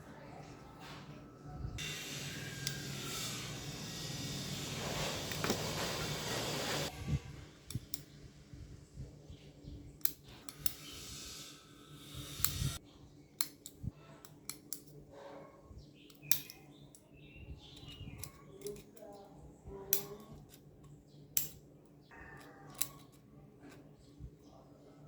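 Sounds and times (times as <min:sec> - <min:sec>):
scratchy cutting of aluminium: 0:01.8 - 0:06.9, 0:10.0 - 0:12.8, 0:17.7 - 0:19.2
sharp clicks of small parts: 0:07.7 - 0:08.1, 0:10.0 - 0:10.9, 0:13.4 - 0:15.0, 0:16.1 - 0:17.0, 0:21.4 - 0:21.6, 0:22.4 - 0:23.2.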